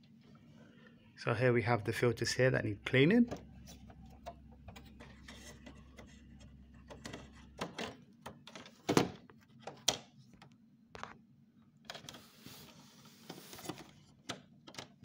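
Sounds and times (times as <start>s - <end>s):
air filters clicking and knocking: 3.1s - 11.1s.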